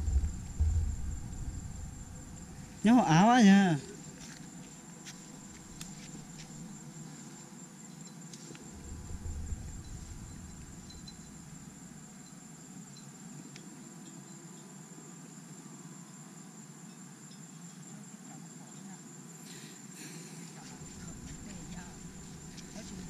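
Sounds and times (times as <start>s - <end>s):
low rumble: 0.0s - 2.8s, 8.7s - 12.1s, 20.8s - 23.0s
insects droning: 0.0s - 23.0s.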